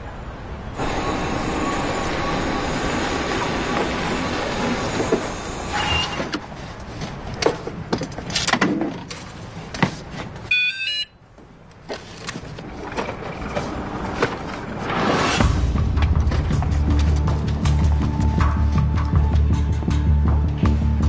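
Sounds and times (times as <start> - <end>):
passing traffic: 0.0 - 21.0
short chiming electronic tone: 0.8 - 6.3.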